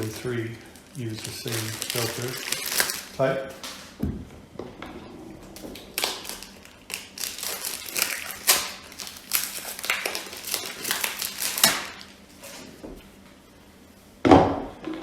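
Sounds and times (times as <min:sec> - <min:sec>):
plastic wrapping crinkling: 0:00.0 - 0:04.0, 0:05.6 - 0:12.8.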